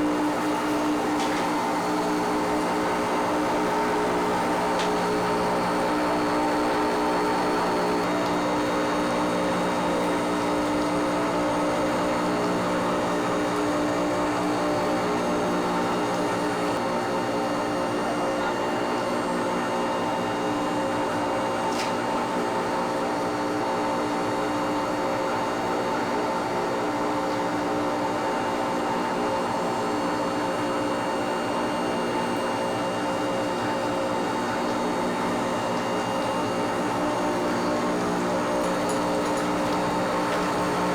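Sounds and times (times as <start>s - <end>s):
factory machinery humming: 0.0s - 18.1s, 30.6s - 40.9s.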